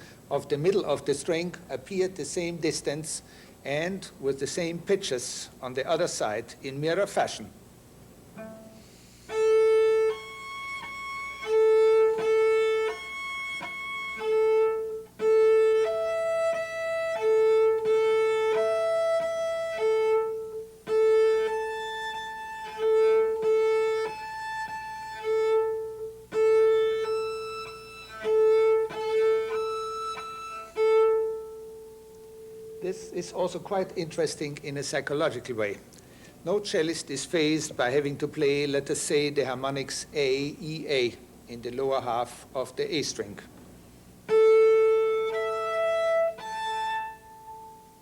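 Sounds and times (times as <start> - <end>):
cello bowed harmonics: 8.3 - 35.3, 44.2 - 48.0.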